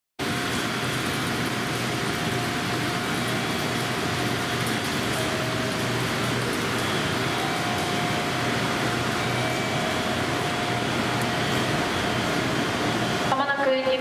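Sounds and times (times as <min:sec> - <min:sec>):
steady whine: 0:00.2 - 0:14.0
trains humming: 0:00.2 - 0:14.0.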